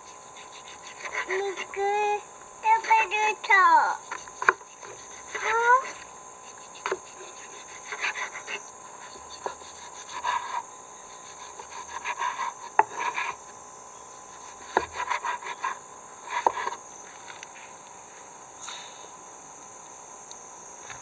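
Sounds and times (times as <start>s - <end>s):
rasping scraping strokes: 4.0s - 13.4s.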